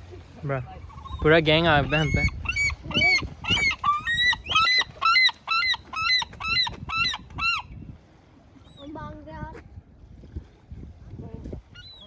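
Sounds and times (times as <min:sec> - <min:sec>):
bird calling loudly: 0:00.9 - 0:07.7.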